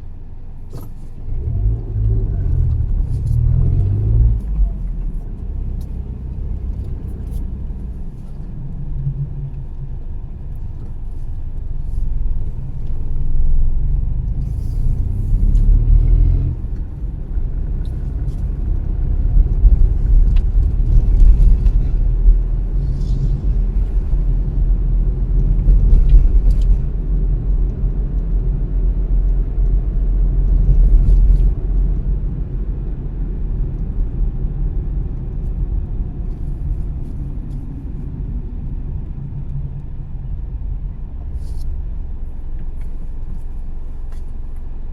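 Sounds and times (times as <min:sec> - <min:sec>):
car road and engine rumble: 0:00.0 - 0:44.9.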